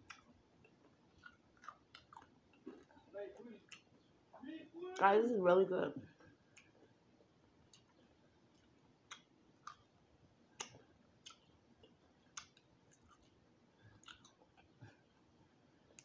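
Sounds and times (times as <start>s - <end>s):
person chewing crispy food: 0.0s - 4.1s, 6.3s - 16.0s
faint clicks of bones: 10.6s - 13.4s.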